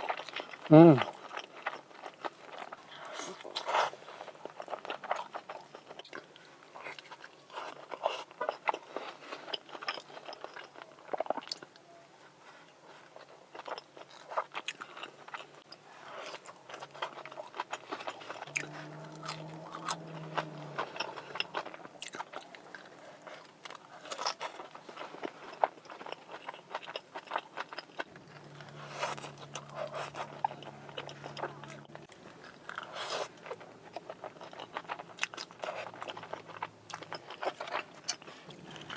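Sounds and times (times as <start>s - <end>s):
crunchy chewing: 0.0s - 38.9s
low steady hum: 15.2s - 38.9s.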